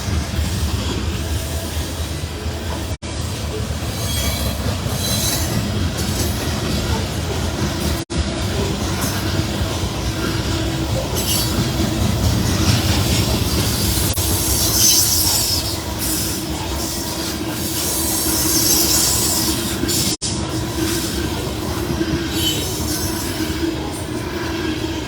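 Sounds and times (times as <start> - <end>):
wheels rumbling on rail: 0.0 - 25.0
high wheel squeal: 3.3 - 7.3, 10.2 - 20.2, 22.1 - 24.0.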